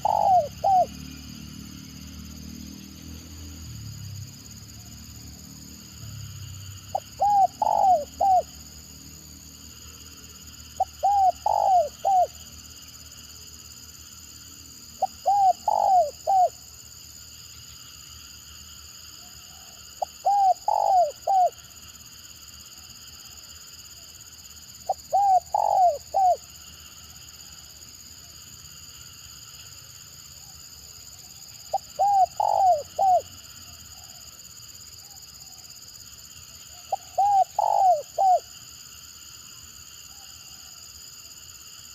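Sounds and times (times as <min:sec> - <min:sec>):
dove cooing: 0:00.0 - 0:01.0, 0:06.9 - 0:08.6, 0:10.8 - 0:12.4, 0:15.0 - 0:16.6, 0:19.5 - 0:21.6, 0:24.9 - 0:26.4, 0:31.7 - 0:33.4, 0:36.8 - 0:38.5.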